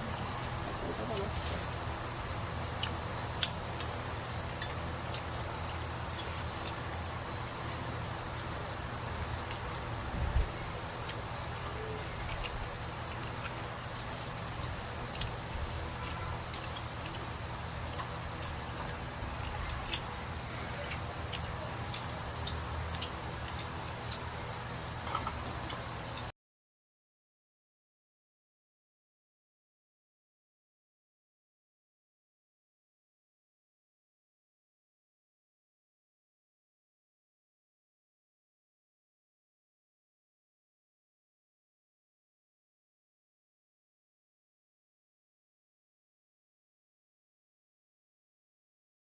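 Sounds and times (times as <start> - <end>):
crickets chirring: 0.0 - 26.3.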